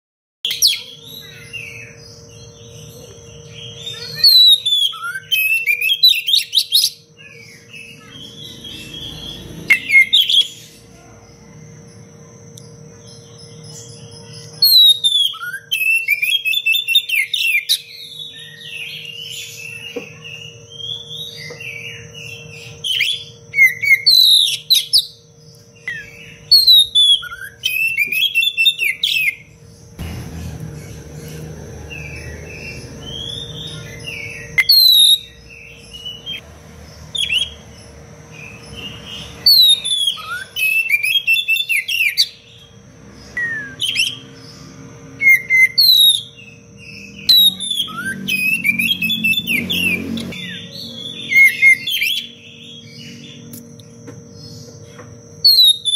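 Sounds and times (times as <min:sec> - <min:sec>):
magpie-robin whistled song: 0:00.5 - 0:10.8, 0:12.9 - 0:29.6, 0:31.8 - 0:36.4, 0:37.1 - 0:44.6, 0:45.2 - 0:55.9.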